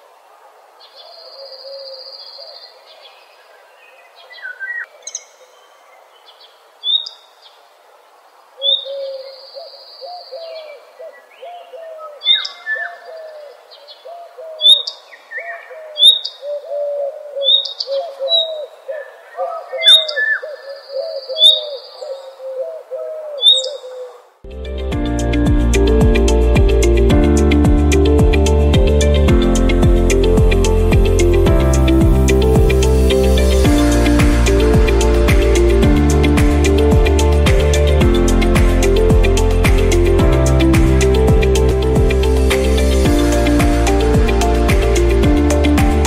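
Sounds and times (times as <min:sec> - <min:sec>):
short low bird calls: 0:08.6 - 0:24.3
high bird trills: 0:14.6 - 0:18.7, 0:23.4 - 0:24.2
sharp high bird chirps: 0:23.4 - 0:23.8.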